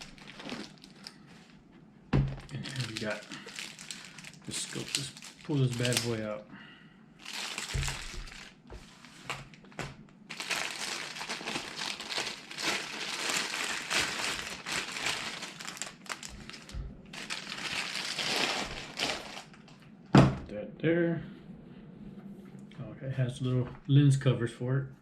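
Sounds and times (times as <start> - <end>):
packaging rustling: 0.0 - 1.6, 2.2 - 6.3, 7.2 - 19.8.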